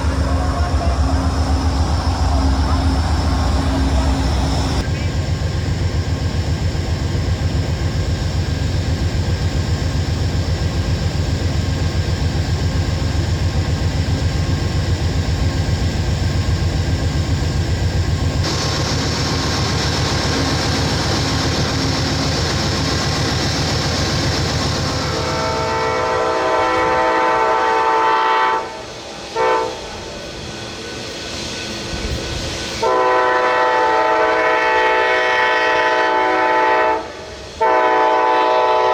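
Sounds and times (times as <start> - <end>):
train passing with low rumble: 0.0 - 38.9
locomotive air horn: 24.9 - 29.8, 32.8 - 38.9.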